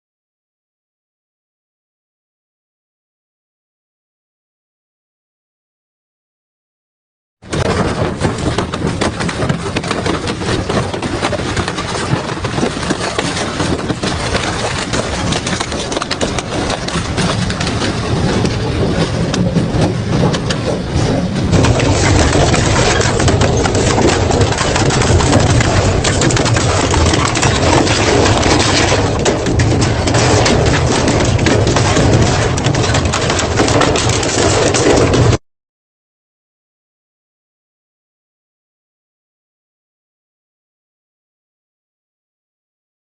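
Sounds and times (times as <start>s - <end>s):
low machine drone: 7.5s - 35.4s
shredder crunching metal: 7.5s - 35.4s.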